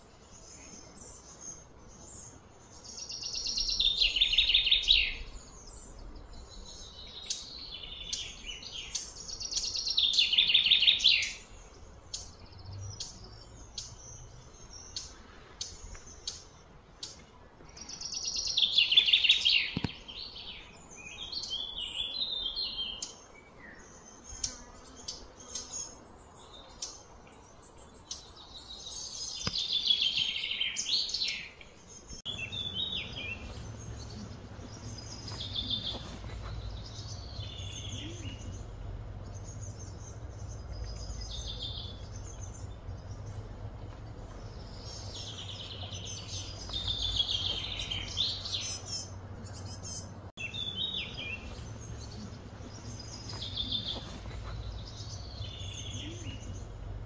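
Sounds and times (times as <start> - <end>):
birds chirping and calling: 0.0 - 57.0
steady low hum: 31.8 - 57.0.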